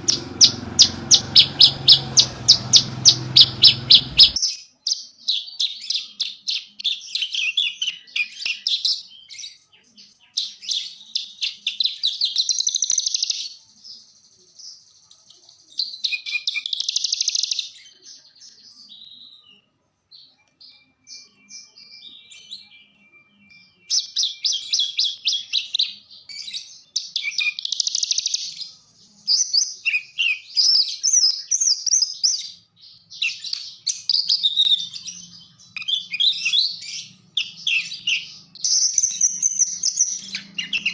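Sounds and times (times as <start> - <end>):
thin bird whistle: 0.0 - 4.9, 33.2 - 40.9
bird chattering song: 0.0 - 40.9.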